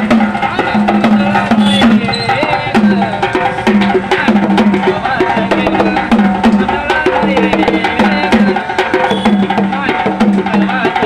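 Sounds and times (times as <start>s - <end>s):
quick drum rhythm: 0.0s - 11.0s
sharp clicking percussion: 0.0s - 11.0s
person singing: 3.8s - 8.9s.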